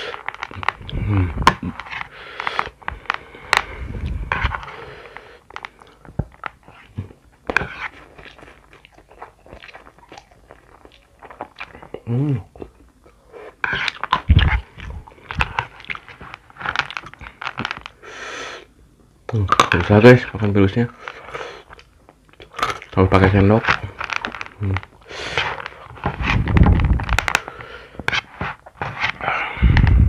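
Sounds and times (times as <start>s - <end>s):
crunching snacks: 0.0s - 3.7s, 7.9s - 12.8s, 13.7s - 18.0s, 21.0s - 27.6s.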